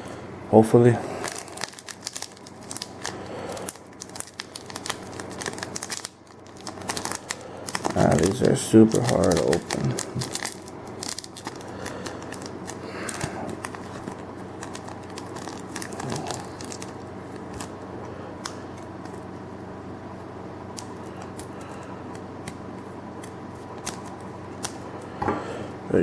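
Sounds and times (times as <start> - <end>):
wrapper crinkling and crackling: 1.2 - 17.8.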